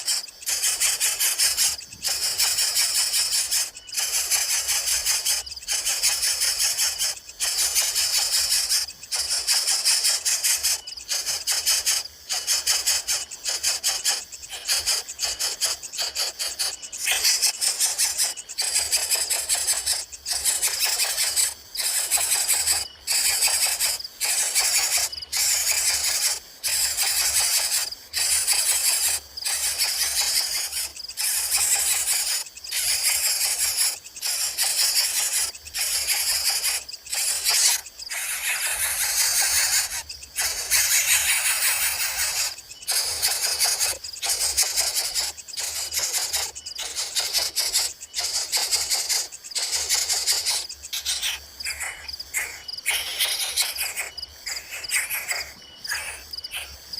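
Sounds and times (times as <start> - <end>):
chicks begging with raspy calls: 24.2 - 56.9.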